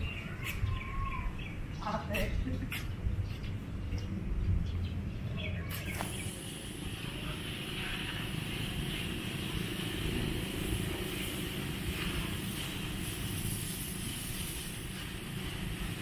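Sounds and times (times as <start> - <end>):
faint bird chirps: 0.0 - 1.6
steady high hiss: 5.9 - 16.0.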